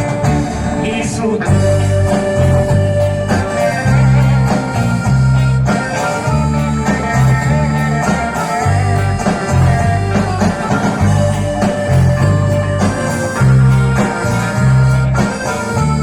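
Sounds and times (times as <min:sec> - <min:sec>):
live pop band instrumental: 0:00.0 - 0:16.0.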